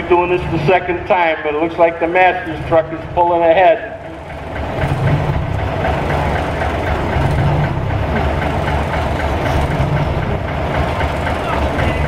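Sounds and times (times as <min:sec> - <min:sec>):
truck engines rumbling and clattering: 0:00.0 - 0:12.0.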